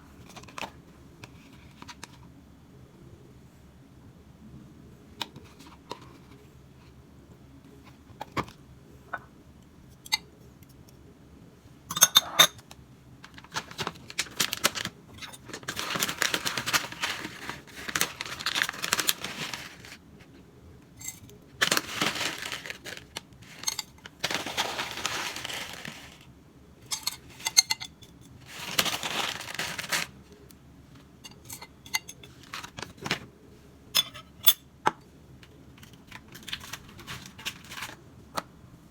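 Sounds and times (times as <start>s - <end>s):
rustling noise: 13.3s - 20.4s, 21.0s - 33.3s, 35.9s - 38.1s
utensils and dishes clinking: 21.0s - 26.1s, 26.8s - 30.1s, 31.2s - 33.2s, 34.0s - 34.7s.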